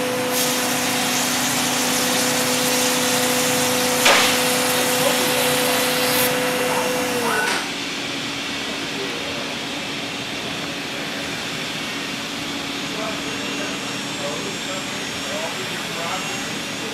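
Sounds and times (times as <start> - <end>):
rush of air and machine hum: 0.0 - 6.8.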